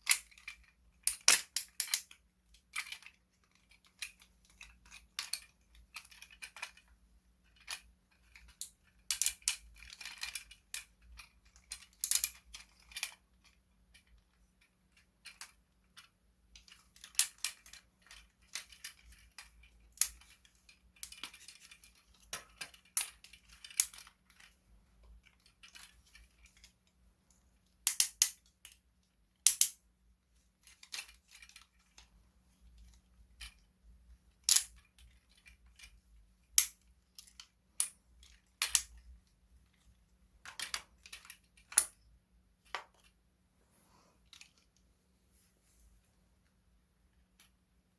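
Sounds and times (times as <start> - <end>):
plastic toy pieces clicking: 0.0 - 6.9, 16.5 - 24.6, 27.8 - 28.8, 29.4 - 29.8, 34.4 - 39.1, 40.4 - 42.0.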